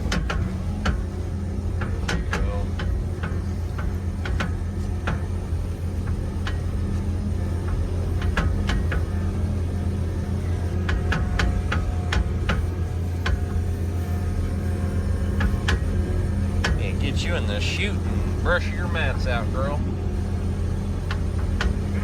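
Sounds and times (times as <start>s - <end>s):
engine idling: 11.9s - 22.0s.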